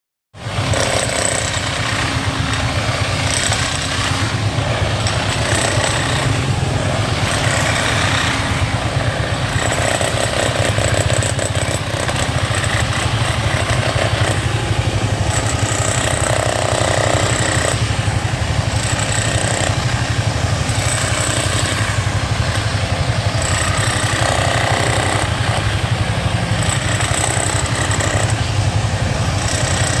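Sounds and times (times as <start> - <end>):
road-repair machinery engine pulsing: 0.4 - 30.0.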